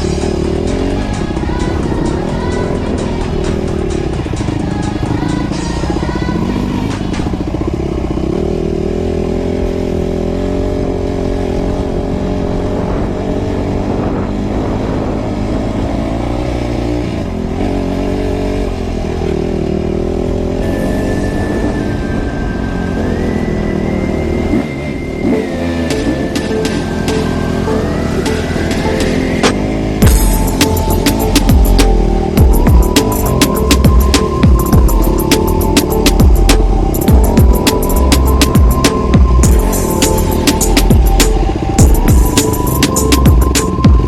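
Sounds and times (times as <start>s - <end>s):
music playing: 0.0s - 8.3s, 20.6s - 44.0s
dirt bike engines revving: 0.0s - 44.0s.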